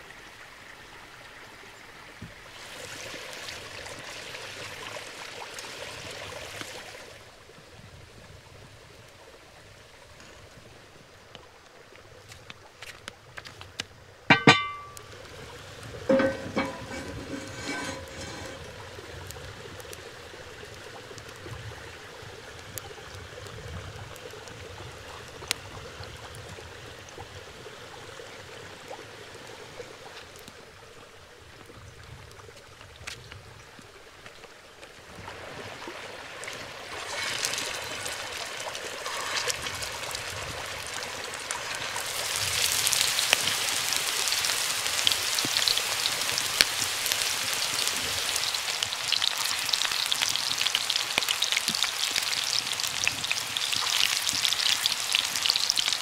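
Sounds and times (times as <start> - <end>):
food bubbling in a pan: 0.0 - 9.3, 35.0 - 56.0
frying sizzle: 2.5 - 7.1, 14.3 - 26.9, 36.4 - 56.0.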